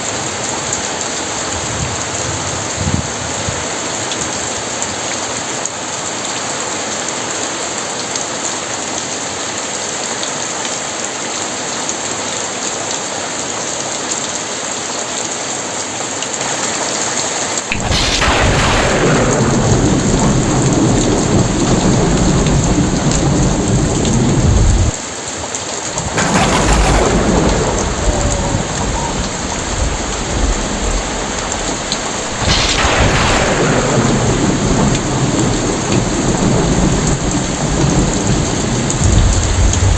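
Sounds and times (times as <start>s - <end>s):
thunder rumbling: 0.0s - 4.8s, 17.7s - 39.9s
heavy rain falling: 0.0s - 39.9s.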